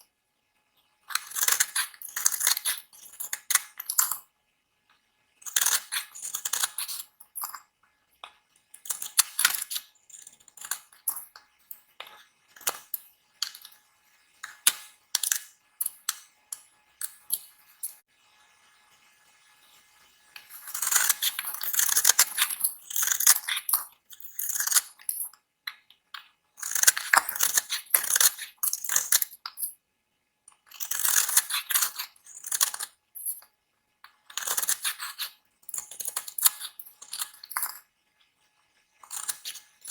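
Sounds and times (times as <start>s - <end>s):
knife cutting dry soap: 1.1s - 4.3s, 5.4s - 7.7s, 8.7s - 13.8s, 20.4s - 26.0s, 26.6s - 29.7s, 30.6s - 33.5s, 34.2s - 37.9s, 39.0s - 39.9s.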